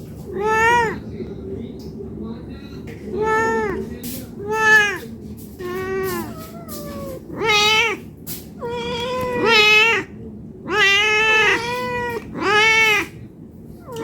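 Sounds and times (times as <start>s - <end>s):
cat meowing: 0.2s - 1.0s, 3.1s - 3.8s, 4.4s - 13.2s.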